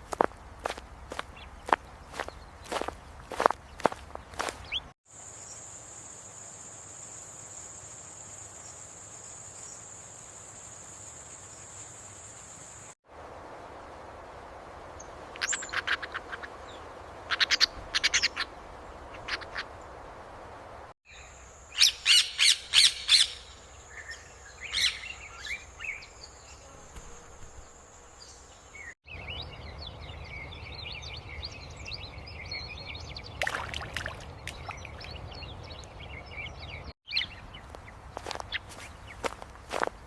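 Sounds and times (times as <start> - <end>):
chatter of many small birds: 1.1 - 4.9
bird chirps: 21.1 - 39.9.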